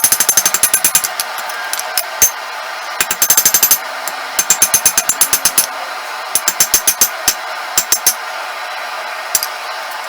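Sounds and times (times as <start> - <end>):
hammer on steel: 0.0 - 2.4, 3.0 - 3.8, 4.4 - 5.7, 6.4 - 8.2.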